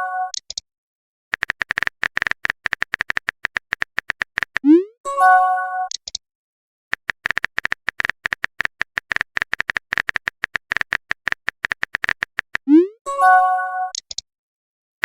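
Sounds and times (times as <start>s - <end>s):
keyboard typing clicks: 1.3s - 4.8s, 6.9s - 12.7s, 13.9s - 14.2s
multi-tone message chime: 13.1s - 13.9s.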